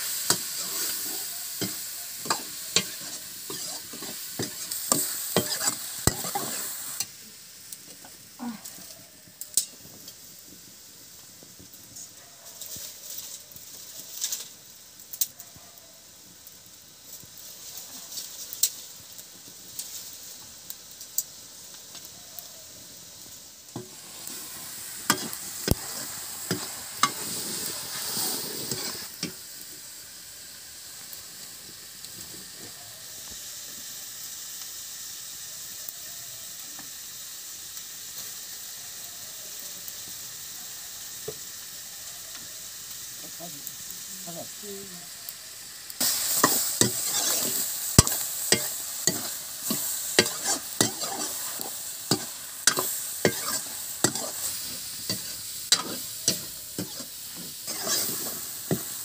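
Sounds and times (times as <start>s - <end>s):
food sizzling in wok: 0.0s - 59.0s
metal ladle clanking and scraping pan: 0.3s - 6.6s, 25.1s - 25.4s, 46.4s - 54.4s, 55.1s - 58.8s.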